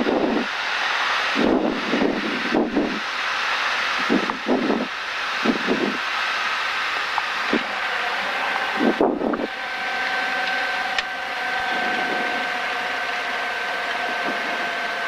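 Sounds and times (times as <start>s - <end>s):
aircraft engine drone: 0.0s - 15.0s
intercom hum: 7.0s - 15.0s.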